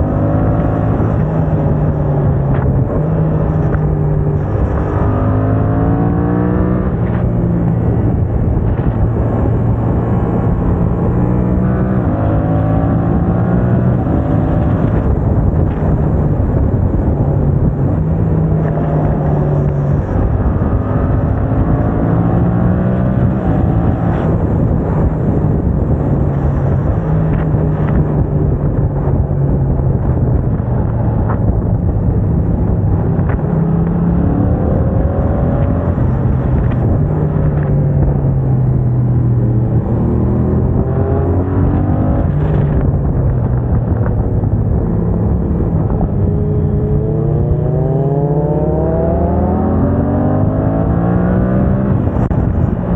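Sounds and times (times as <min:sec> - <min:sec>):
motorcycle engine revving through gears: 0:00.0 - 0:52.9.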